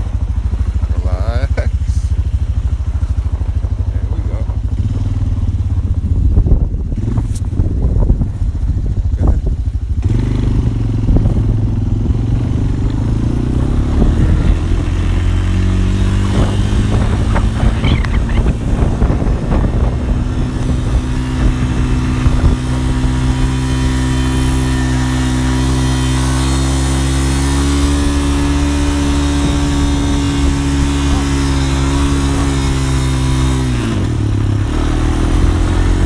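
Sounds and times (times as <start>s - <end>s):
quad engine running: 0.0s - 36.0s.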